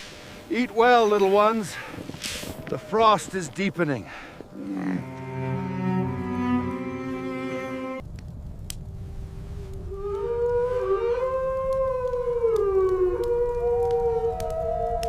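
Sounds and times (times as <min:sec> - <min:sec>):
steady low rumble: 0:04.4 - 0:10.6
wolf howling: 0:04.6 - 0:08.0, 0:09.9 - 0:15.0.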